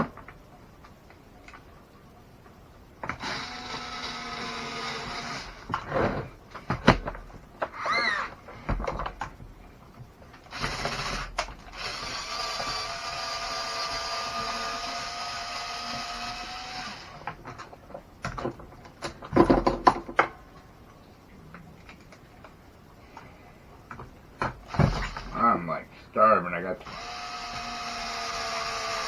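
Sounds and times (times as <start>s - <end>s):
cordless drill whining: 3.1s - 5.9s, 7.7s - 8.4s, 10.5s - 17.3s, 26.8s - 29.0s.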